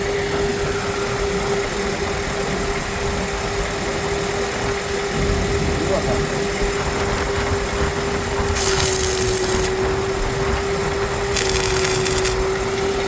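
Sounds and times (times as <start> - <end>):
engine humming: 0.0 - 13.0
harsh hissing burst: 5.1 - 13.0.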